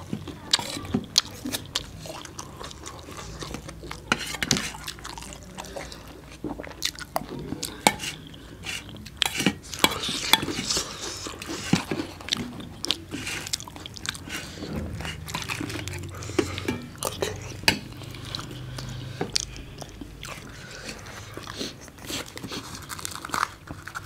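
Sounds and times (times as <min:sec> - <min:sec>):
people chewing and eating: 0:00.0 - 0:24.0
metal spoon on steel bowl: 0:04.1 - 0:04.7, 0:07.8 - 0:08.2, 0:09.2 - 0:10.7.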